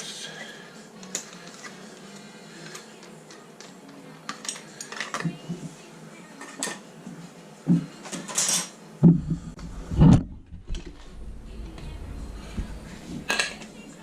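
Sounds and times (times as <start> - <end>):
heavy thumps: 9.0 - 13.7.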